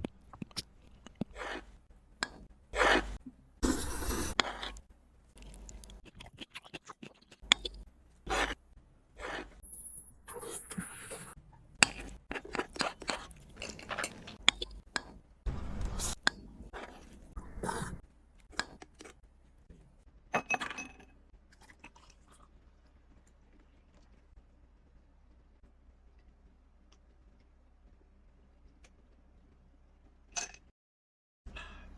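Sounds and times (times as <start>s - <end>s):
person chewing food: 5.4s - 8.6s, 11.8s - 15.2s, 15.8s - 19.6s, 21.6s - 24.3s.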